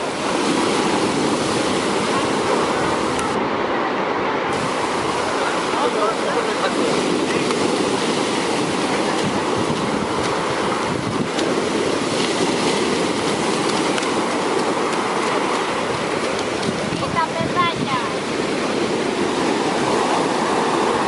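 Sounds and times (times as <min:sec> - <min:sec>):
waves breaking on beach: 0:00.0 - 0:21.0.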